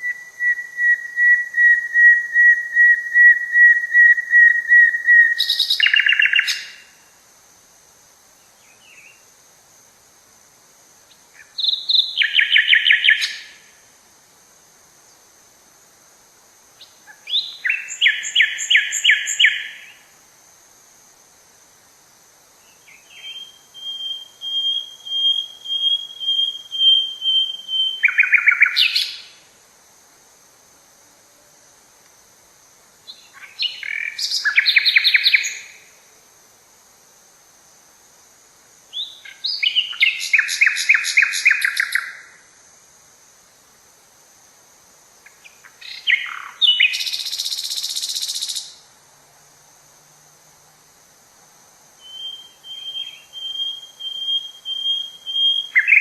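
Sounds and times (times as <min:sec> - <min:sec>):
bird whistling song: 0:00.0 - 0:06.9, 0:11.4 - 0:13.6, 0:16.8 - 0:20.0, 0:22.7 - 0:29.3, 0:33.1 - 0:35.8, 0:38.9 - 0:42.2, 0:45.4 - 0:48.7, 0:52.0 - 0:56.0
faint high-pitched hiss: 0:00.0 - 0:56.0
buzzy bird trill: 0:22.9 - 0:29.3, 0:52.0 - 0:56.0.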